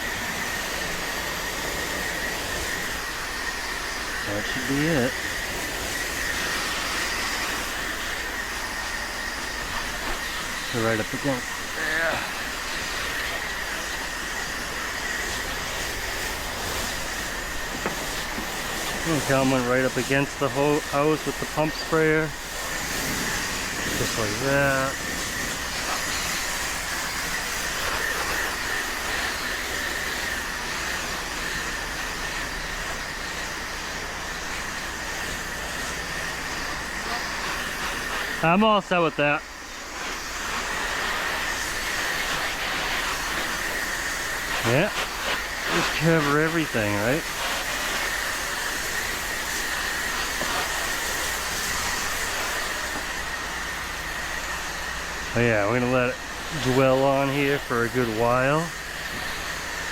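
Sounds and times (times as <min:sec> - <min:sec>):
machine high tone and hum: 0:00.0 - 0:42.2
pressure washer spraying: 0:00.0 - 0:59.9.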